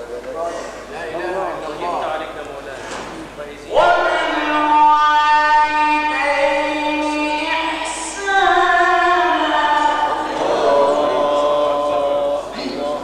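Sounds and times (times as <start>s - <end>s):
man reciting melodically: 3.6s - 13.0s.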